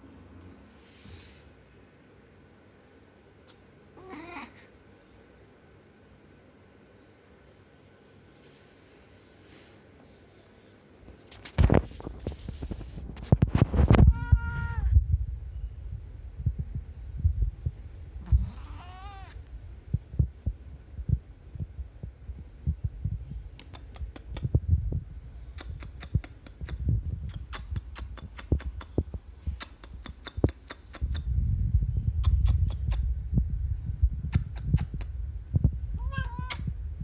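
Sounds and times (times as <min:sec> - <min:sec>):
low thumps and rumble: 0:11.6 - 0:29.3, 0:30.4 - 0:37.0
sharp clicks: 0:25.5 - 0:29.0, 0:29.6 - 0:31.3.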